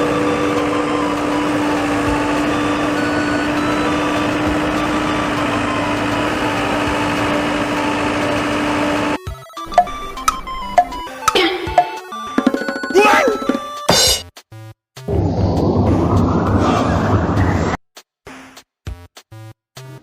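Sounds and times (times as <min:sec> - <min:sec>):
heavy machine engine humming: 0:00.0 - 0:12.2.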